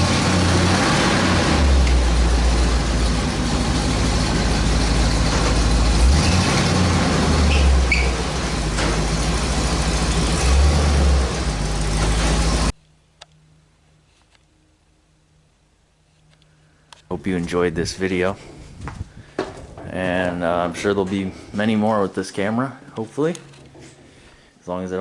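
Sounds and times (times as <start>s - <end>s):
truck engine rumbling: 0.0s - 12.8s.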